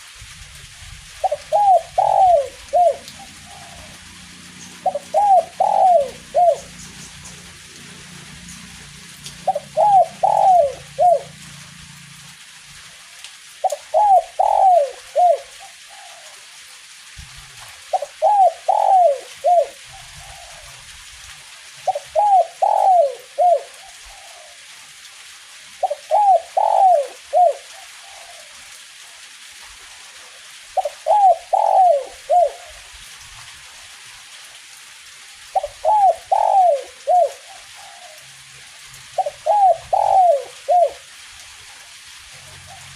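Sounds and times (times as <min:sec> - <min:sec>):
light drizzle hiss: 0:00.0 - 0:42.9
dove cooing: 0:01.2 - 0:11.6, 0:13.6 - 0:16.4, 0:17.9 - 0:20.9, 0:21.8 - 0:24.7, 0:25.8 - 0:28.6, 0:30.8 - 0:32.9, 0:35.5 - 0:41.1, 0:42.4 - 0:42.9.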